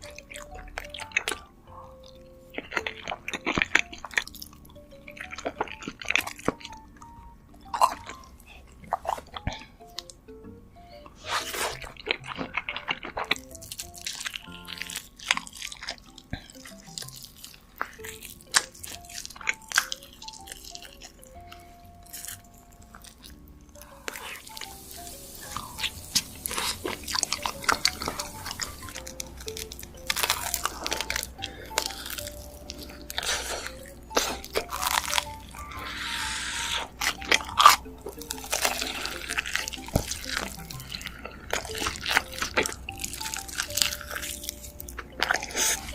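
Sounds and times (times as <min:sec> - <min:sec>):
crunching and wet chewing: 0:00.0 - 0:10.2, 0:10.9 - 0:45.9
soft plucked background music: 0:00.0 - 0:45.9.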